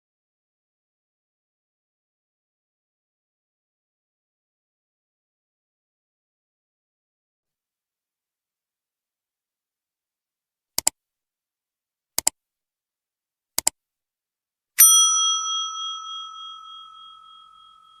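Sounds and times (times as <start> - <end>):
bright bell ding: 14.8 - 18.0.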